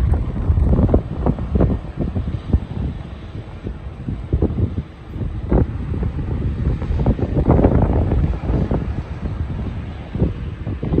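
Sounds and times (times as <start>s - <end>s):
jet engines rumbling: 0.0s - 11.0s
wind buffeting microphone: 0.0s - 11.0s.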